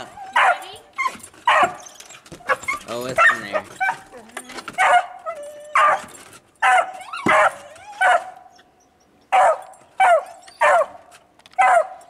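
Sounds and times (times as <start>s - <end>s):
dog barking: 0.3s - 0.7s, 1.5s - 1.8s, 3.2s - 4.1s, 4.8s - 5.2s, 5.8s - 8.4s, 9.3s - 11.0s, 11.6s - 12.0s.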